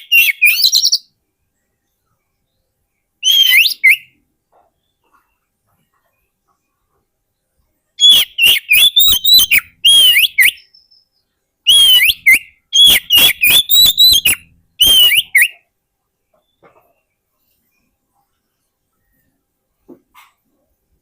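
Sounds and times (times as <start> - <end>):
bird song with whistles and clicks: 0.0 - 1.1, 3.2 - 4.2, 8.0 - 15.7.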